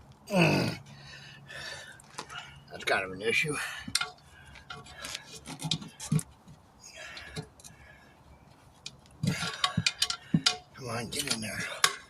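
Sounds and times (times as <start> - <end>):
tire iron scraping rubber and metal: 1.5 - 12.0
sharp metal knocks: 9.2 - 12.0.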